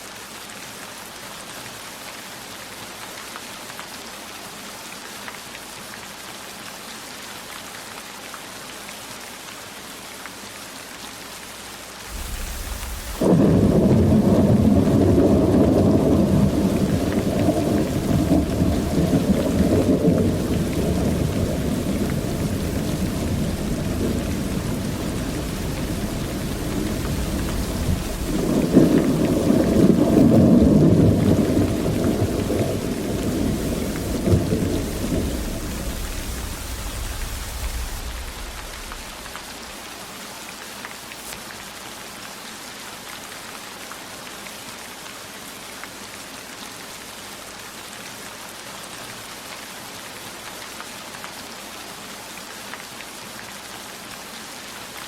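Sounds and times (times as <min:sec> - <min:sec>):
steady rain: 0:00.0 - 0:55.0
thunder rolling: 0:12.1 - 0:39.8.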